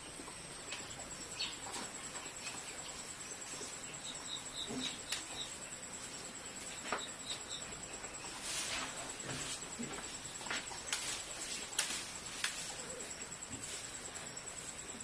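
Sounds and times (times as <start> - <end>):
faint high-pitched whine: 0.0 - 15.0
small bird chirping: 0.7 - 5.8.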